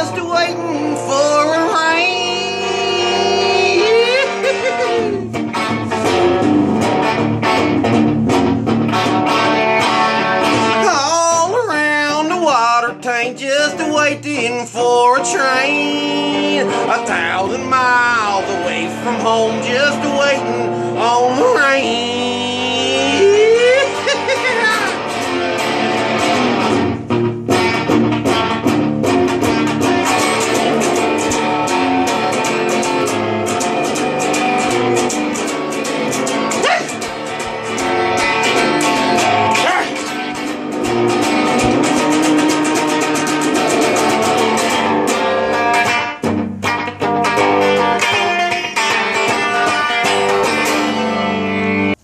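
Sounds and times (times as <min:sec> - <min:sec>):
guitar picking and strumming: 0:00.0 - 0:52.0.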